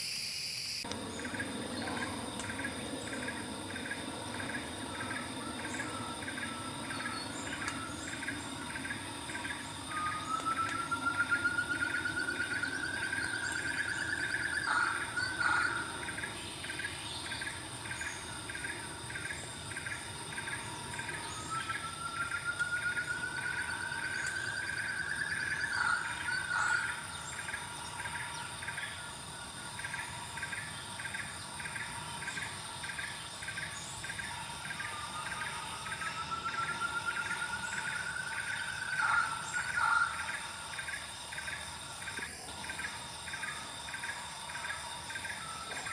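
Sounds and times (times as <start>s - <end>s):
high insect hum: 0.0s - 45.9s
insects chirping: 0.0s - 45.9s
bird whistling: 9.6s - 15.9s.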